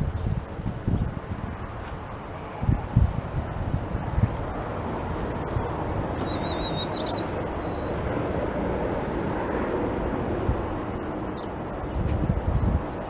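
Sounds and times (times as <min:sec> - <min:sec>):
steady rushing background noise: 0:00.0 - 0:13.0
songbird trilling call: 0:06.2 - 0:08.0.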